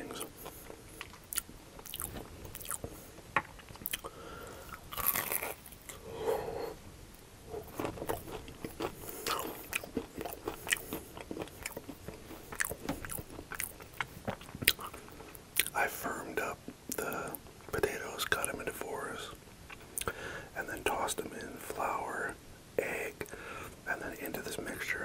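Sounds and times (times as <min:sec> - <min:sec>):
crunchy chewing: 0:00.0 - 0:06.1, 0:07.5 - 0:15.8.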